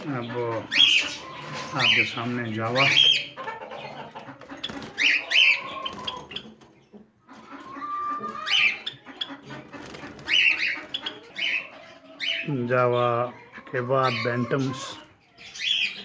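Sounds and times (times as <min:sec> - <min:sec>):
chickens calling: 0:00.0 - 0:16.0.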